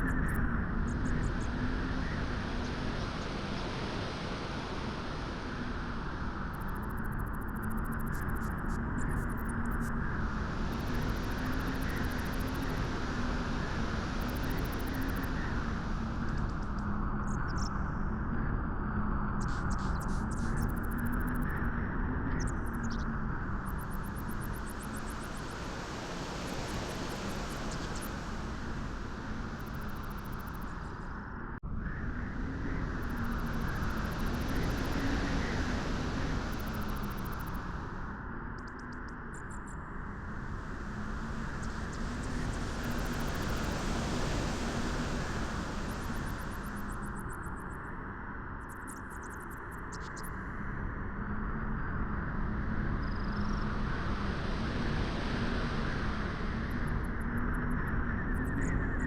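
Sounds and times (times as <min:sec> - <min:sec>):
wind blowing: 0:24.3 - 0:31.0, 0:40.1 - 0:47.2.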